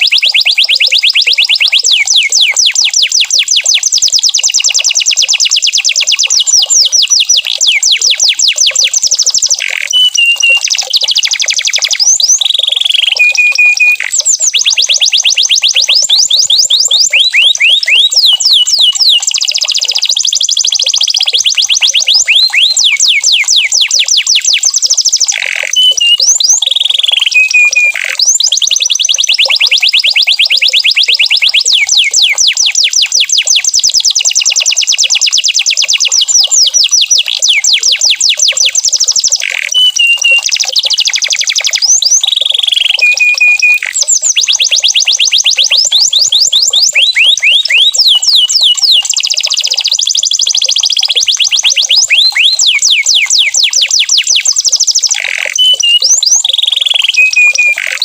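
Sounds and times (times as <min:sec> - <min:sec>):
canary singing trills: 0:00.0 - 0:58.0
short held whistles: 0:09.9 - 0:14.3, 0:25.7 - 0:26.3, 0:27.2 - 0:28.2, 0:39.4 - 0:40.7, 0:42.0 - 0:44.2, 0:55.2 - 0:56.4, 0:57.1 - 0:58.0.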